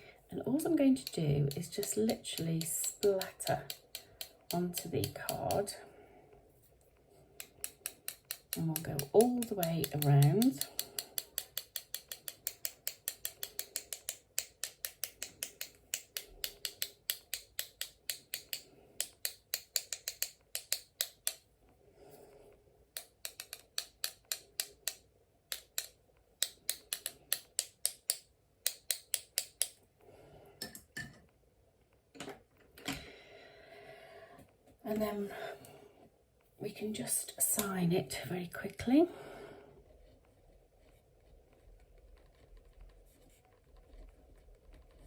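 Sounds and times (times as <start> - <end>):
paintbrush tapping on pencil: 7.4 - 21.4.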